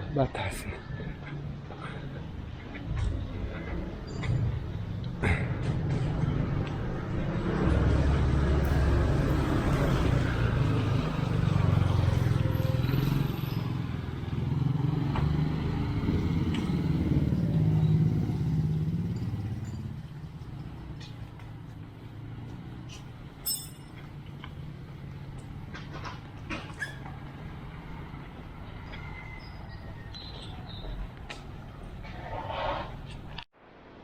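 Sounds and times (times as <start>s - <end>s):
vehicle engine running: 1.9s - 23.4s
brief high squeak: 26.7s - 27.1s.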